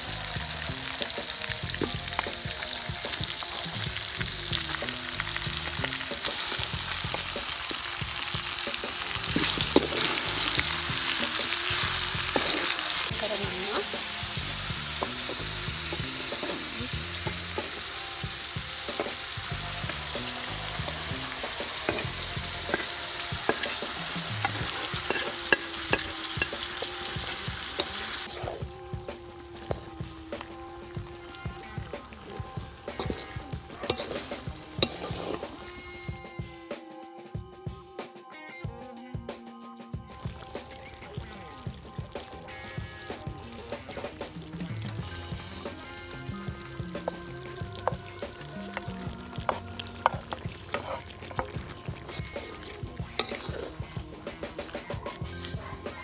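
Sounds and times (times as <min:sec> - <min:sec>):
vegetables sizzling in hot oil: 0:00.0 - 0:36.2, 0:40.1 - 0:56.0
spatula scraping a metal wok: 0:05.9 - 0:28.8, 0:31.3 - 0:36.2, 0:45.8 - 0:56.0.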